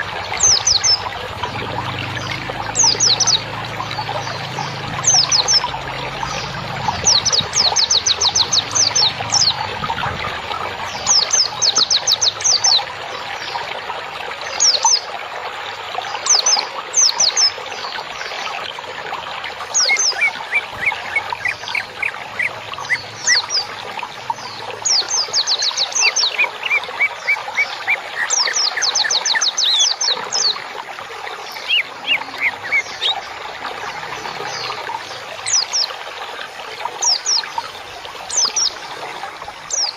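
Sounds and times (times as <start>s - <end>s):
songbirds rapid trills: 0.0s - 13.7s, 19.5s - 39.9s
trickling water: 0.0s - 39.9s.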